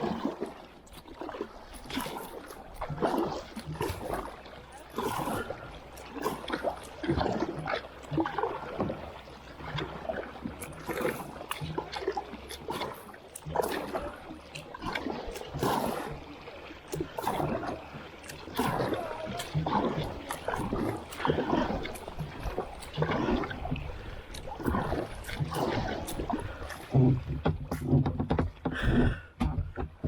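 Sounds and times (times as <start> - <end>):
paddle splashing in water: 0.0 - 30.0
short knocks and clatter: 27.0 - 30.0.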